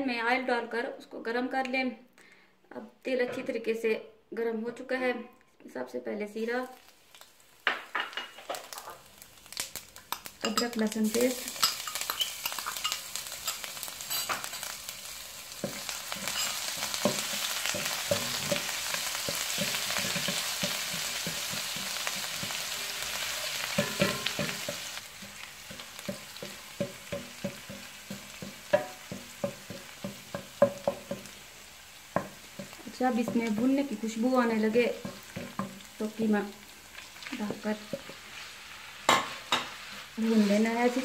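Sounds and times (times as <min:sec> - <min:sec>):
seeds sizzling in hot oil: 0:06.4 - 0:41.0
spatula tapping and scraping pan: 0:11.4 - 0:14.8, 0:15.6 - 0:31.4, 0:32.1 - 0:34.0, 0:34.9 - 0:35.9, 0:37.4 - 0:38.2, 0:39.1 - 0:41.0.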